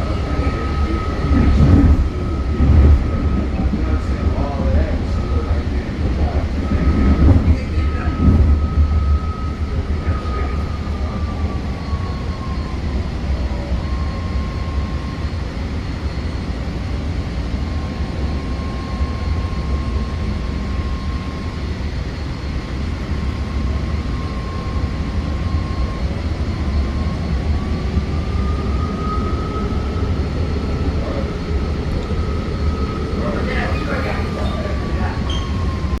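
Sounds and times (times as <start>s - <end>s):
train rumbling: 0.0s - 36.0s.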